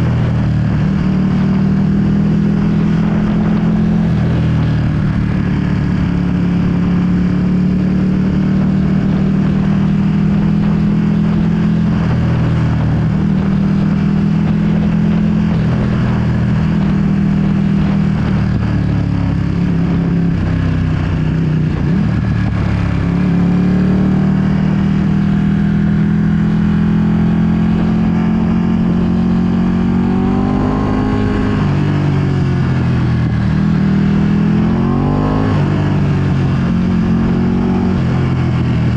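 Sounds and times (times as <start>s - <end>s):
motorcycle engine cruising: 0.0s - 38.9s
wind over microphone: 0.0s - 38.9s.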